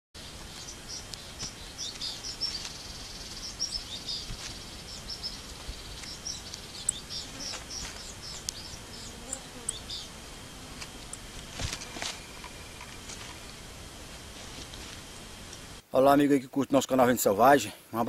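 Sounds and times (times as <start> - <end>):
small birds chirping: 0.2 - 10.2
faint insect buzz: 0.2 - 16.0.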